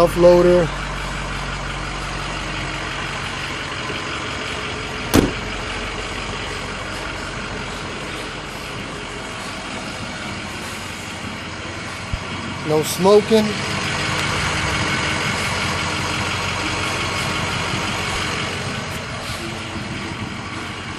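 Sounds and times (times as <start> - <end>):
truck engine idling: 0.0 - 20.9
sharp knock: 5.1 - 5.5.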